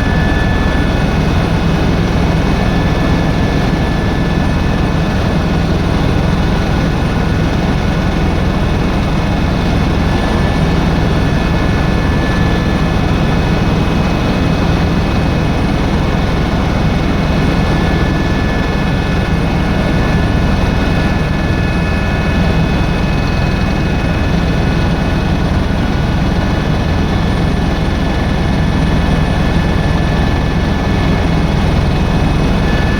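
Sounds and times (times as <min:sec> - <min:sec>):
helicopter rotor and engine drone: 0:00.0 - 0:32.9
steady high whine: 0:00.0 - 0:32.9.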